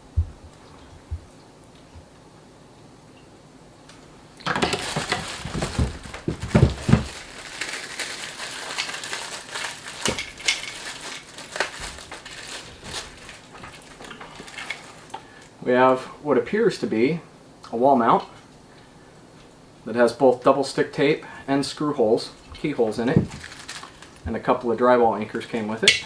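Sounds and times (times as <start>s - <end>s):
handling knocks: 4.4s - 15.1s, 22.4s - 26.0s
packaging crinkling and rustling: 4.4s - 15.6s, 22.3s - 26.0s.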